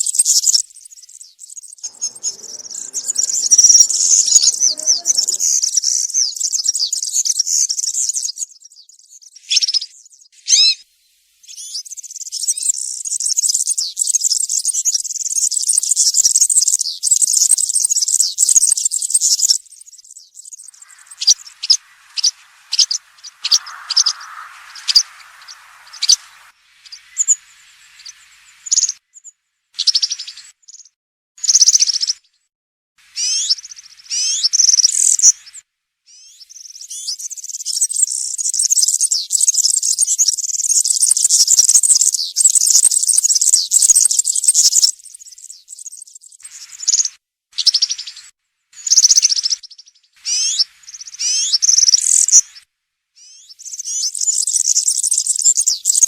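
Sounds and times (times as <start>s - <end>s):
songbird jingling song: 1.8s - 5.6s.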